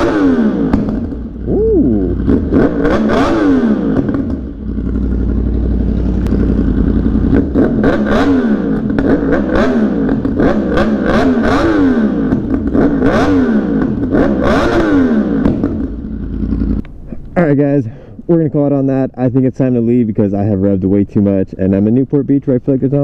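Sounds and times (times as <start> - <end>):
motorcycle engine revving: 0.0 - 17.4
exhaust pops and crackles: 0.6 - 1.4, 2.2 - 17.5.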